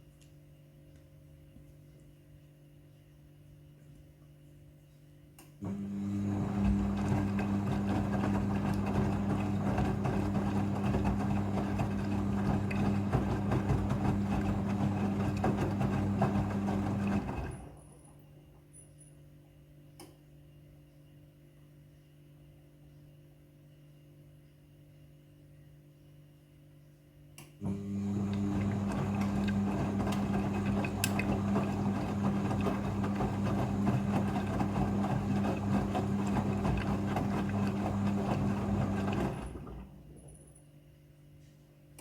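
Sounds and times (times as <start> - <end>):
washing machine running: 5.6 - 18.2, 27.6 - 40.5.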